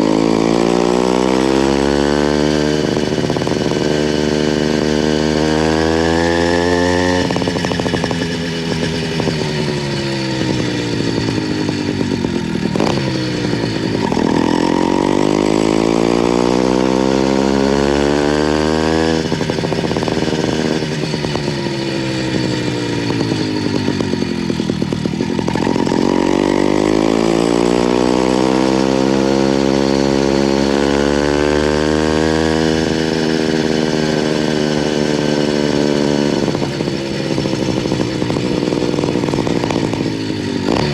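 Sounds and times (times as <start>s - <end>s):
small two-stroke engine buzzing: 0.0s - 40.9s.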